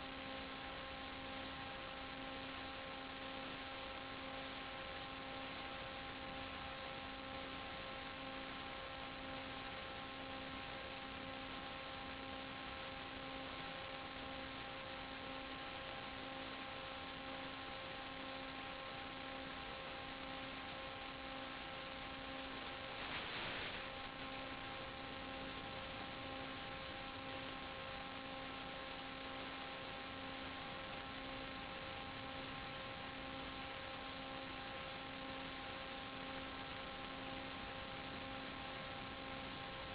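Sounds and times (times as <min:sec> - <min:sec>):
electrical hum: 0:00.0 - 0:39.9
static hiss: 0:00.0 - 0:39.9.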